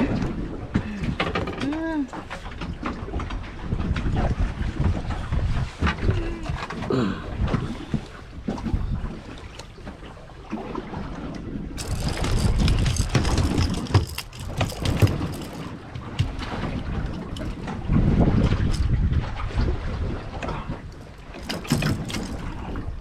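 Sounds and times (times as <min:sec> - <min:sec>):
wind gusting on microphone: 0:11.8 - 0:23.0.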